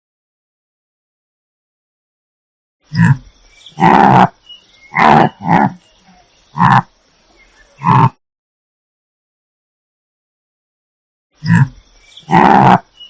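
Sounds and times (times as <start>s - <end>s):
large animal calling: 2.9s - 6.9s, 7.8s - 8.2s, 11.4s - 13.0s.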